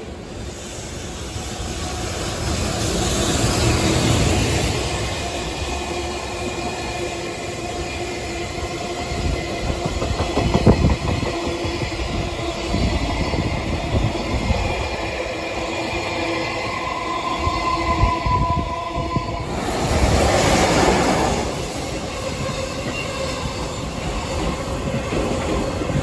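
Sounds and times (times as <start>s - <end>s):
freight train wheels clicking: 8.8s - 15.7s.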